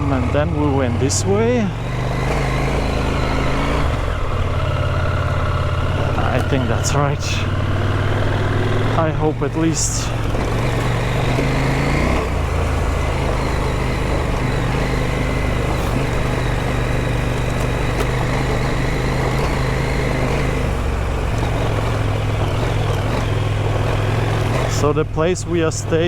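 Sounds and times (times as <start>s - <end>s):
tyre noise on dirt: 0.0s - 25.0s
motorcycle engine running: 0.0s - 26.0s
wind: 0.0s - 26.0s.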